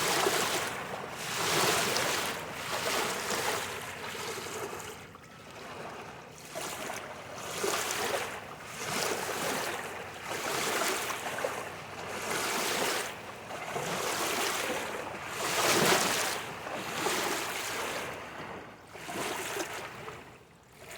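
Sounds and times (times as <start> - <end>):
waves washing against bank: 0.0 - 4.0.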